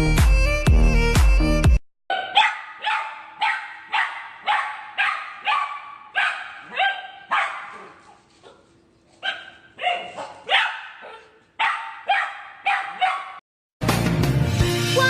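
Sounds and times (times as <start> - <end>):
dog barking: 2.1 - 13.4.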